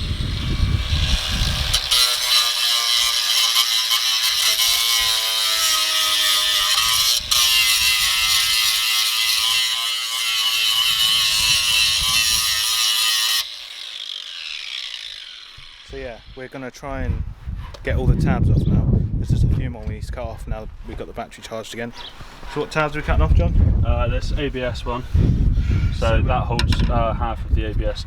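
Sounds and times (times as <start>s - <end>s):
power tool grinding metal: 0.0s - 16.7s.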